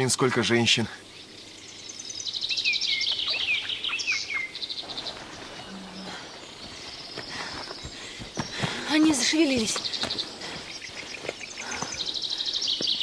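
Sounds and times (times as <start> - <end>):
songbird rapid high trill: 1.2 - 7.2.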